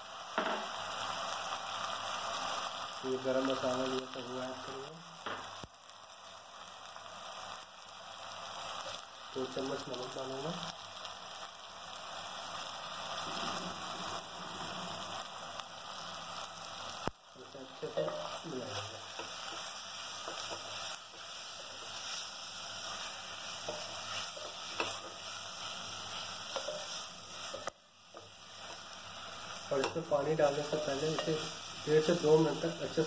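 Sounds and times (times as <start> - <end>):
food sizzling in hot oil: 0.0 - 33.0
wooden spatula stirring: 17.8 - 33.0.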